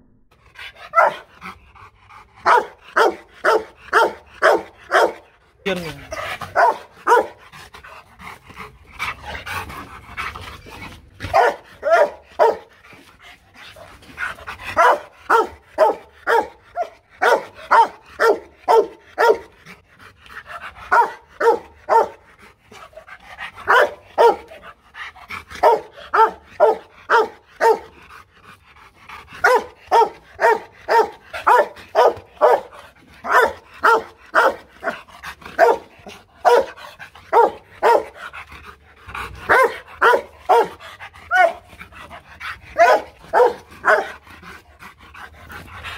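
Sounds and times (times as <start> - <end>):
dog barking: 0.9 - 1.3, 2.4 - 5.2, 6.5 - 7.4, 11.2 - 12.7, 14.7 - 19.5, 20.9 - 22.2, 23.7 - 24.5, 25.6 - 28.0, 29.4 - 35.0, 35.6 - 38.2, 39.5 - 41.6, 42.8 - 44.2.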